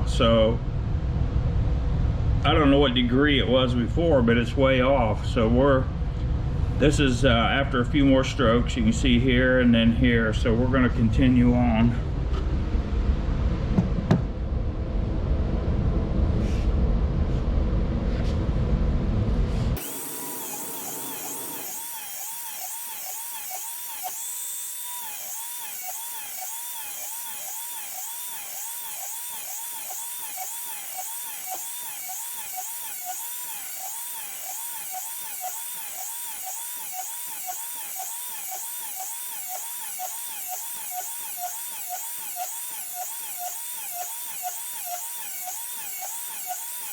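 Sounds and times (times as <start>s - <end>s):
high wavering whine: 19.8s - 46.7s
blade sharpener grinding: 19.8s - 46.9s.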